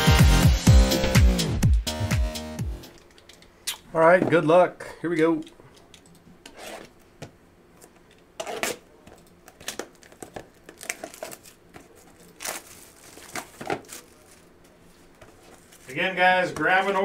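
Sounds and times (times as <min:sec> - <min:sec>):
card pack wrappers tearing and crinkling: 0:09.5 - 0:14.6, 0:15.4 - 0:16.1.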